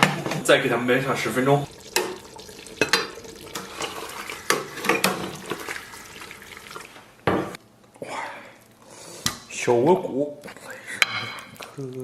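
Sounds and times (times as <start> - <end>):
tap running into sink: 1.7 - 7.6.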